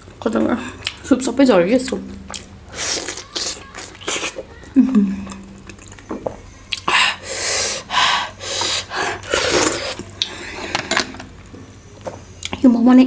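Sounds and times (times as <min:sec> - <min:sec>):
person slurping and breathing: 0:02.7 - 0:05.4, 0:06.7 - 0:11.0.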